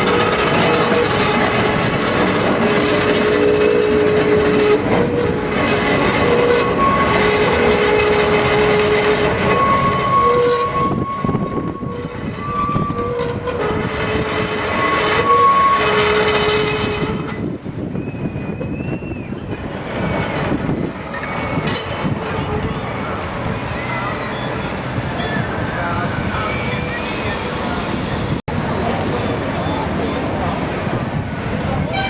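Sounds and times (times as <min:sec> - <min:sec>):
tram running gear rumble: 0:00.0 - 0:32.0
tram wheels squealing: 0:00.0 - 0:32.0.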